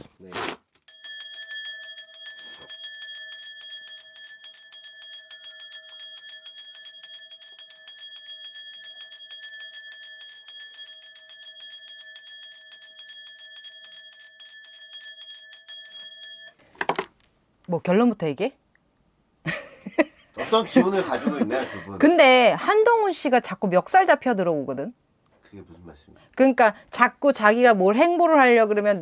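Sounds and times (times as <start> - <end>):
ritual bells jangling: 0.9 - 16.6, 19.5 - 23.0.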